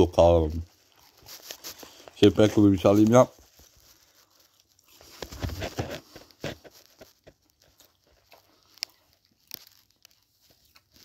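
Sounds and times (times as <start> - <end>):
person chewing: 0.6 - 2.2, 3.6 - 11.0.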